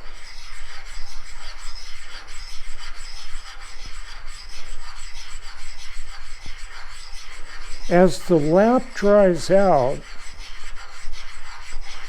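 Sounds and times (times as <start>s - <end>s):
metal rubbed on abrasive lap: 0.0s - 8.8s.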